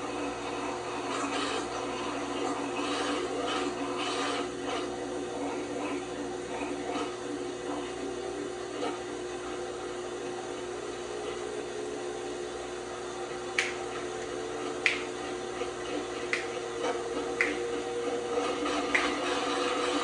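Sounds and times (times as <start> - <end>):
sharp clicks: 13.6 - 13.8, 14.9 - 15.1, 17.4 - 17.6, 19.0 - 19.2.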